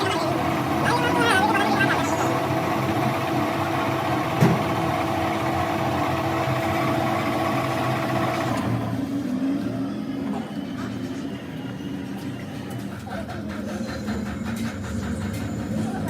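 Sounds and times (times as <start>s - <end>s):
higher motor tone: 0.0s - 9.0s
machine motor humming: 0.0s - 9.1s.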